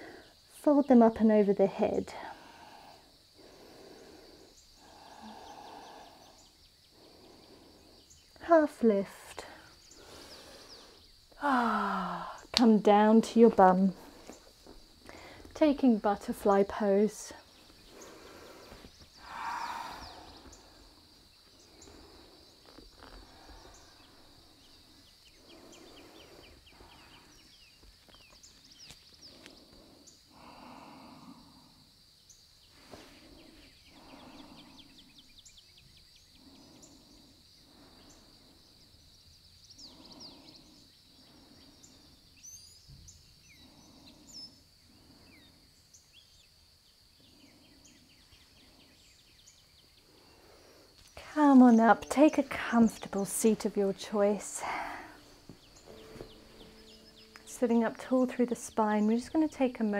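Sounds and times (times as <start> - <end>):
steady faint hiss: 0.0 - 59.9
birds chirping and trilling: 2.8 - 8.4, 9.7 - 11.4, 12.4 - 31.3, 32.2 - 59.9
soft low sounds: 51.2 - 59.7.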